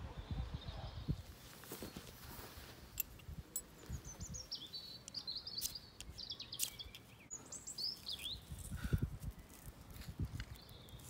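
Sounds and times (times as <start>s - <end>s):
songbird twittering: 3.7s - 8.7s.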